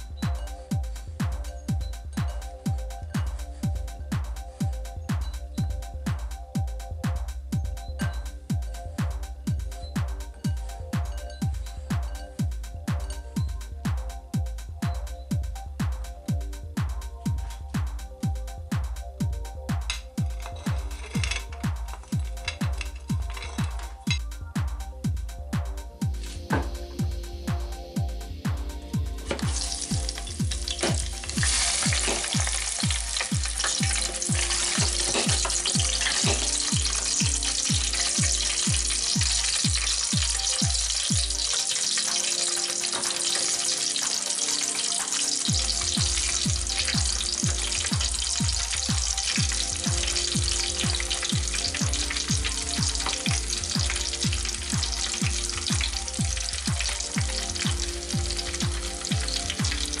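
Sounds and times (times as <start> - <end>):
background music with beat: 0.0 - 60.0
fries sizzling in deep fryer: 19.8 - 24.2, 29.2 - 60.0.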